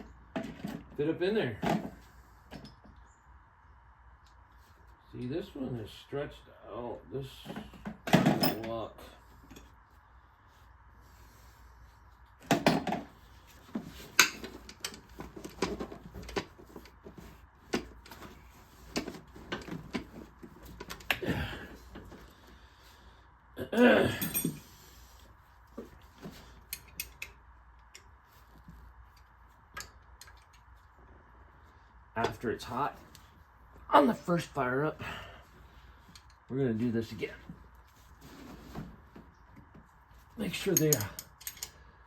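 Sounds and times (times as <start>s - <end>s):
hand tools clinking on metal: 8.2s - 8.9s, 24.0s - 24.8s, 40.5s - 41.8s.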